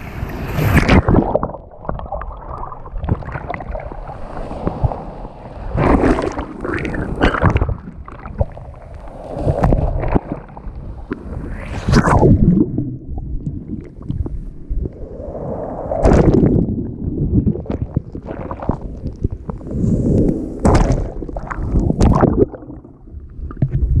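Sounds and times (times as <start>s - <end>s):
low rumble: 11.4s - 24.0s.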